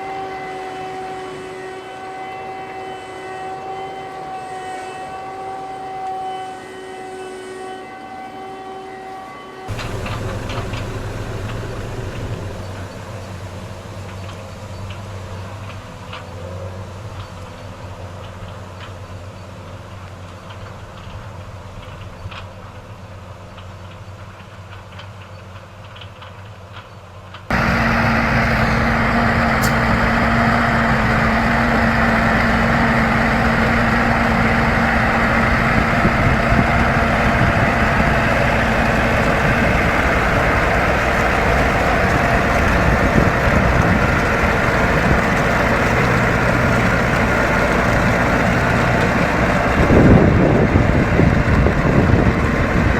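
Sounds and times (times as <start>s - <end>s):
steady hum: 9.7s - 14.2s
heavy farm machinery running: 9.7s - 15.8s, 27.5s - 52.9s.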